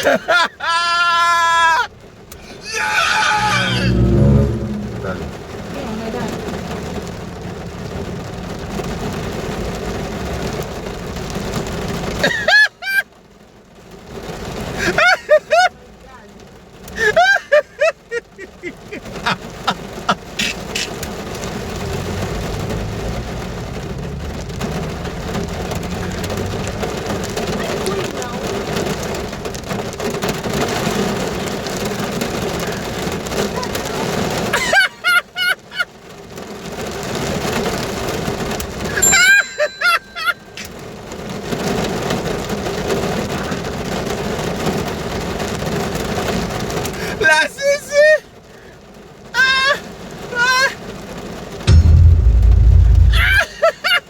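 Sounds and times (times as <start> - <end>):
rain drumming on a car roof: 0.0 - 3.1, 5.6 - 51.7
short pitched sounds: 3.2 - 5.4, 51.7 - 53.4.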